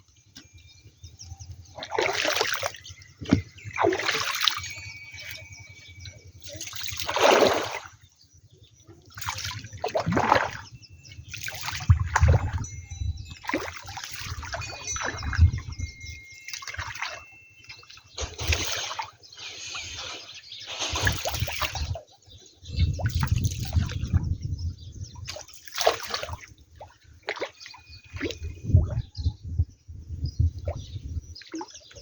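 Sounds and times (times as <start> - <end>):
water splashing and pouring: 1.8 - 5.8, 6.4 - 8.0, 9.1 - 22.0, 22.9 - 24.4, 25.2 - 29.0.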